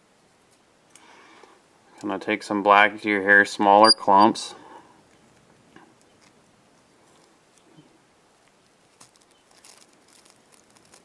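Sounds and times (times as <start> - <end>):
light rustles of hands handling materials: 5.1 - 11.0.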